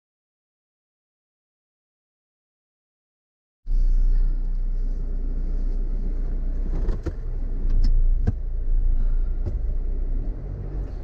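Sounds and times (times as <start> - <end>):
vehicle engine and road rumble: 3.7 - 11.0.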